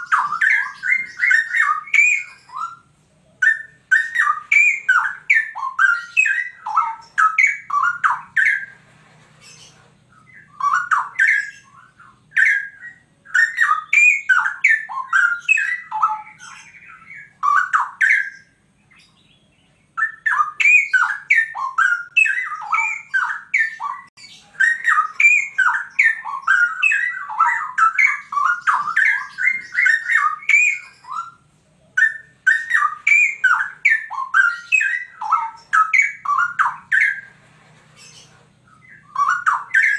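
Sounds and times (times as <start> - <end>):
bird warbling: 0.0 - 19.1, 19.9 - 39.9.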